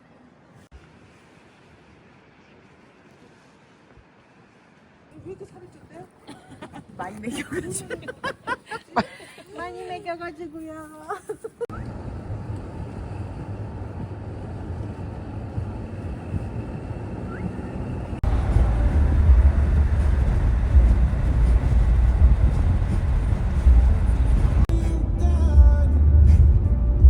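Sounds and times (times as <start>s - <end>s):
vehicle rumble: 11.6s - 27.0s.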